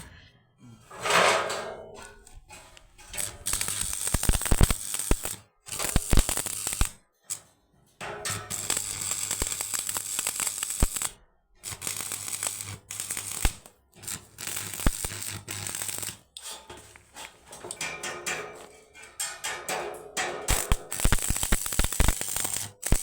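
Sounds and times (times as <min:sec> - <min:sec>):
welding arc crackling and hissing: 0:03.2 - 0:07.0, 0:08.3 - 0:16.4, 0:20.5 - 0:23.0.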